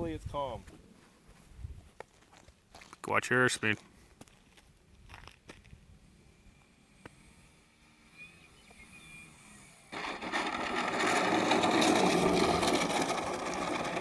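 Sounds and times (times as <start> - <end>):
model aircraft motor buzzing: 5.6 - 14.0.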